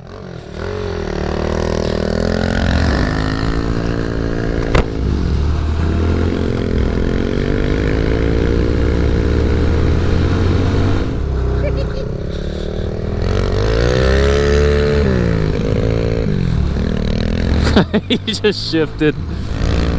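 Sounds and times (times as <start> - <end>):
mini motorcycle engine revving: 0.0 - 4.9.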